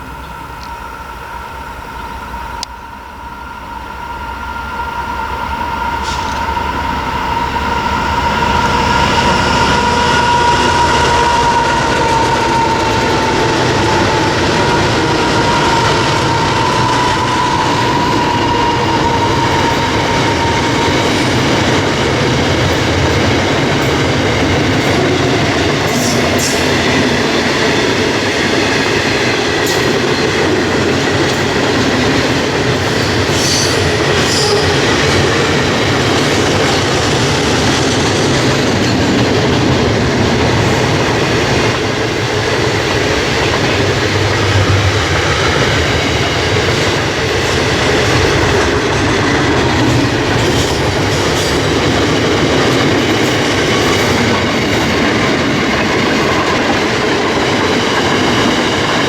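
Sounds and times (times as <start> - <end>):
train wheels rumbling on rail: 0.0 - 59.0
high wheel squeal: 0.3 - 27.3, 29.6 - 37.2.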